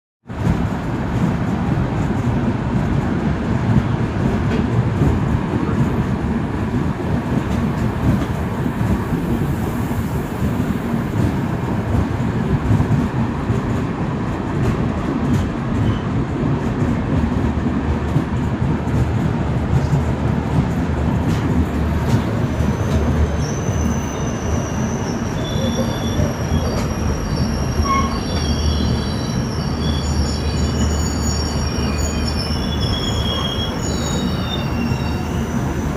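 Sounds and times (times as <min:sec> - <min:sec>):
train wheels rumbling on rails: 0:00.2 - 0:35.9
wheels squealing: 0:22.6 - 0:35.9.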